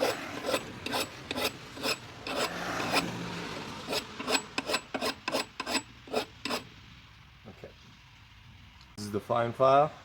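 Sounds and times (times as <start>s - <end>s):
hand file rasping on steel: 0.0s - 6.7s.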